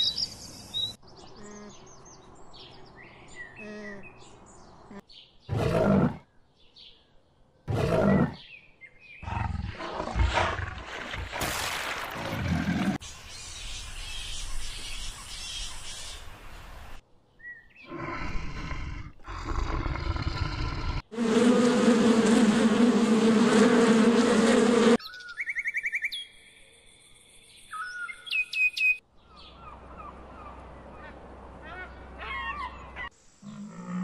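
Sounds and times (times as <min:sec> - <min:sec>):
honeybees buzzing: 0:21.0 - 0:25.0.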